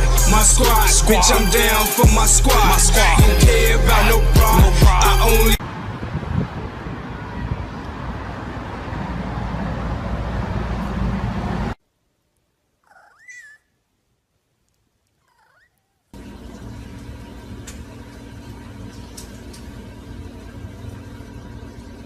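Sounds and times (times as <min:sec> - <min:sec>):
loud steady noise: 0:00.0 - 0:07.4
cat meowing: 0:15.2 - 0:15.8.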